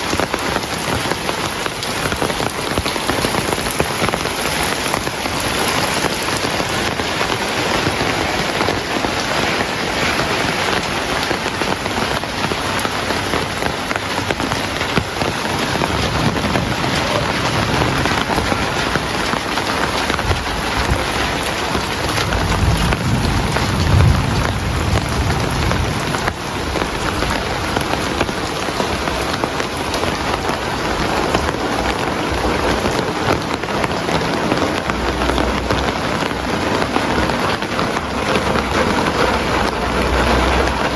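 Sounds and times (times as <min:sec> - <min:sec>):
heavy rain pouring: 0:00.0 - 0:40.9
low rumble of thunder: 0:14.8 - 0:40.9.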